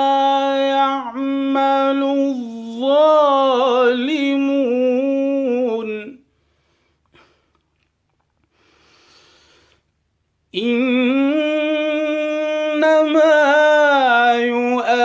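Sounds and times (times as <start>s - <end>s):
man chanting melodically: 0.0s - 6.2s, 10.6s - 15.0s
soft intake of breath: 6.3s - 7.5s, 8.5s - 9.9s.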